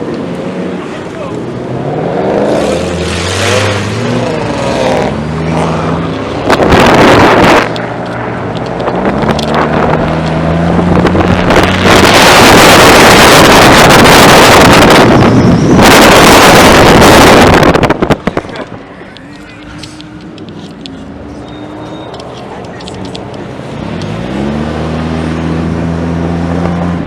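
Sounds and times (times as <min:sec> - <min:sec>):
loud steady rushing noise: 0:00.0 - 0:20.2
car engines revving: 0:00.0 - 0:27.0.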